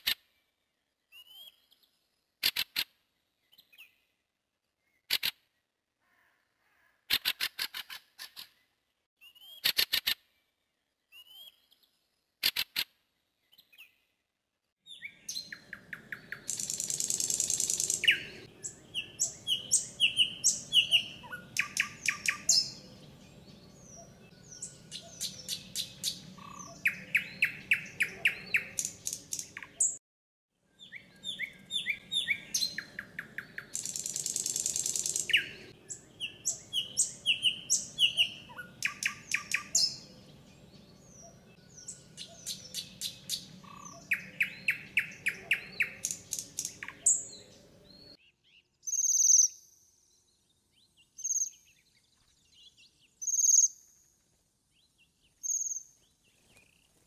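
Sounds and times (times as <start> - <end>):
songbirds chirping and singing: 14.8 - 30.0, 30.7 - 54.1.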